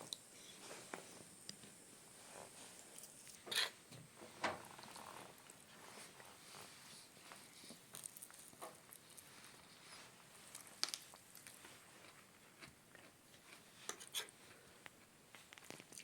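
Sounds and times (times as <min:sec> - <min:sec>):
faint chewing and biting: 0:07.3 - 0:09.7, 0:10.4 - 0:16.0.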